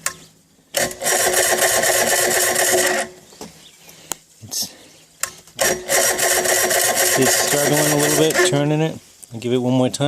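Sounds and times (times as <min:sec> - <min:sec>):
electric starter cranking motor: 0:00.7 - 0:03.2, 0:05.6 - 0:08.7.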